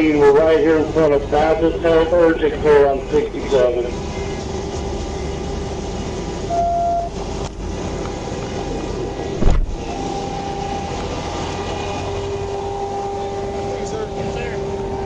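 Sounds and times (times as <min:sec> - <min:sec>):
highway traffic hum: 0:00.0 - 0:15.0
loud low whoosh: 0:09.4 - 0:09.9.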